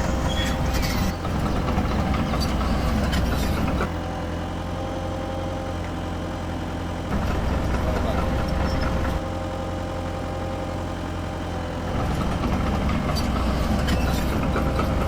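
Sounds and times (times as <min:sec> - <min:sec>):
toy excavator mechanical hum: 0:00.0 - 0:03.9, 0:11.9 - 0:15.0.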